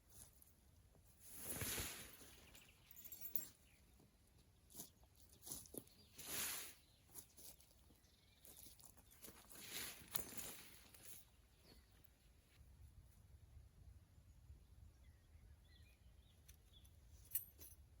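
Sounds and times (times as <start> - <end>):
soft rustling swishes: 1.2 - 3.4.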